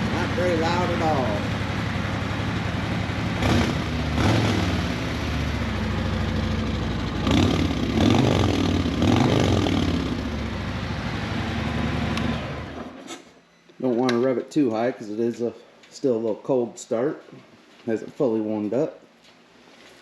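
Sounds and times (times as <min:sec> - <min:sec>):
motorcycle engine idling: 0:00.0 - 0:04.2, 0:04.8 - 0:12.2.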